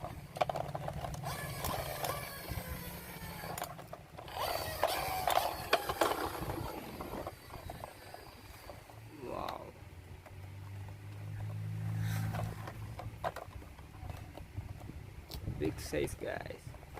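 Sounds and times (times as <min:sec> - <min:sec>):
rapid toy gear clicks: 0:00.0 - 0:09.6
toy wheels whirring: 0:00.0 - 0:14.9.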